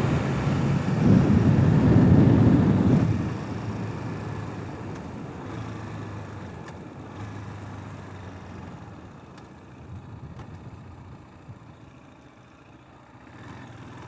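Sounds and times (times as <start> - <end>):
rushing air noise: 0.0 - 4.3
motorcycle engine running: 0.0 - 14.0.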